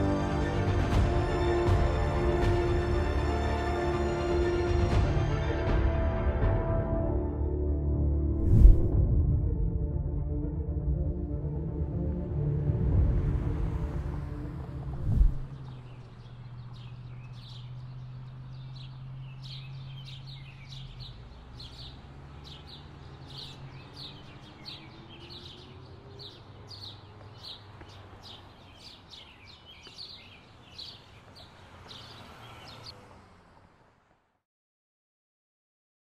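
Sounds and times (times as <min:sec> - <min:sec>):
birds chirping: 0:14.2 - 0:33.0.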